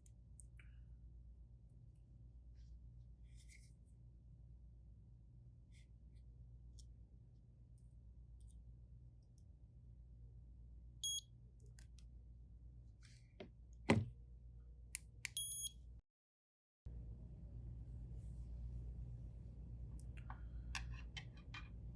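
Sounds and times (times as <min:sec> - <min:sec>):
low steady hum: 0:16.9 - 0:21.9.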